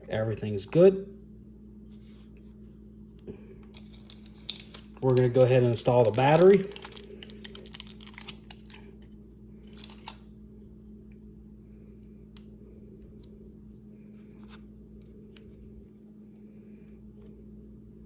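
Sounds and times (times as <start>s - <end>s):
steady low hum: 0.0s - 18.0s
small parts clicking and tapping: 3.7s - 10.2s.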